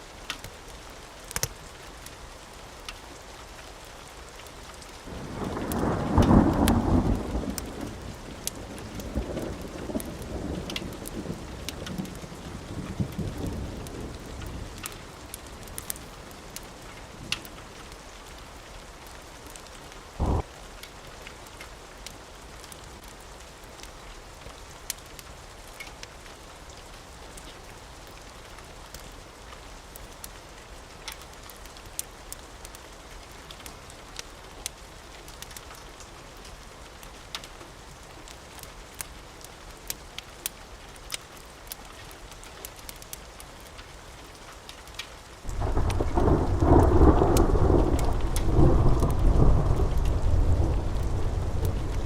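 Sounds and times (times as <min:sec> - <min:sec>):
steady rain: 0:00.0 - 0:52.0
thunder rumble: 0:05.1 - 0:16.0, 0:20.2 - 0:20.5, 0:45.5 - 0:52.0
loud low thump: 0:20.2 - 0:20.4.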